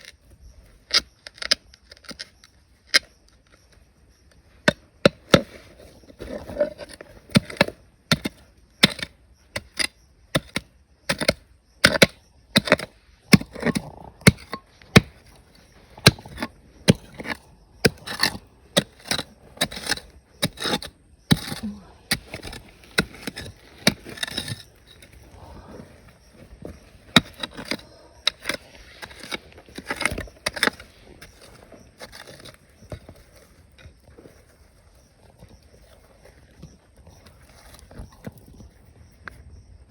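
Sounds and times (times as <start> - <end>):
hand tool striking rock and gravel: 4.6 - 34.0.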